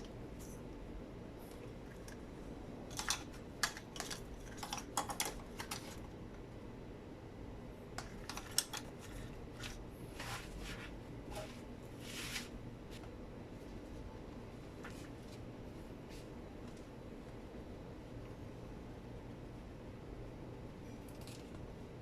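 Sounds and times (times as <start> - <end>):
soft rubbing sounds: 9.0 - 16.4.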